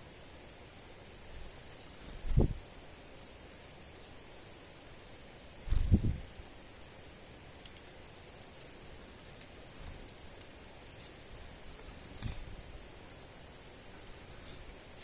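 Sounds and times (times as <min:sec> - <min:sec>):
small bird high-pitched chirps: 0:00.2 - 0:02.6, 0:04.0 - 0:05.5, 0:06.4 - 0:08.5, 0:09.2 - 0:13.2.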